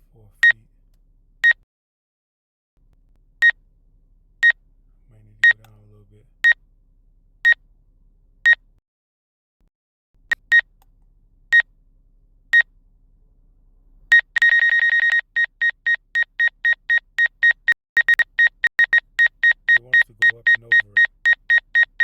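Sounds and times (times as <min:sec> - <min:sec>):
electronic warning beeps: 0:05.4 - 0:05.6, 0:14.1 - 0:22.0.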